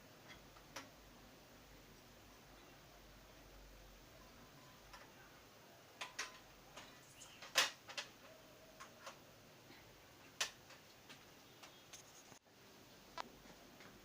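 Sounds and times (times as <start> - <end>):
plastic parts and screws clicking: 6.0 - 9.2.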